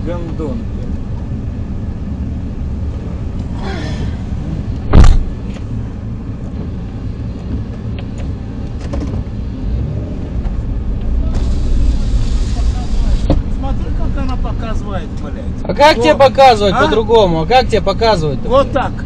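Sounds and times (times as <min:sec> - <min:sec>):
car engine idling: 0:00.0 - 0:19.0
loud thump: 0:04.8 - 0:05.4, 0:13.2 - 0:13.6.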